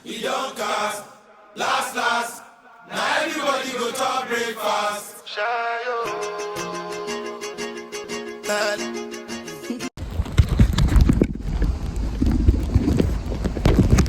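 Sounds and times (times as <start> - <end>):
chanted vocals: 0.0 - 7.6
instrumental music with held notes: 6.0 - 9.9.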